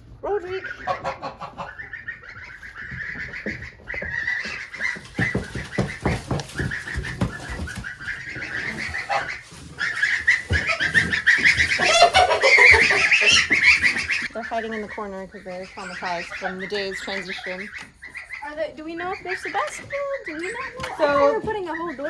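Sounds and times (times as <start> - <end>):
poultry calling: 0.0 - 22.0
scattered knocks: 3.0 - 8.2.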